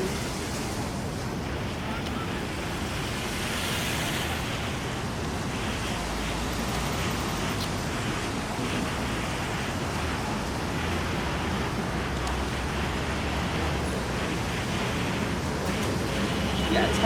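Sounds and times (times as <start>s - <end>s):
heavy rain on street: 0.0s - 17.0s
passing traffic rumble: 0.0s - 17.0s.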